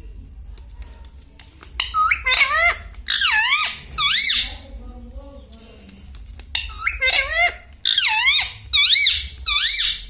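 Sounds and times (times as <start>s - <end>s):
parrot high-pitched calls: 1.8s - 4.6s, 6.6s - 10.0s.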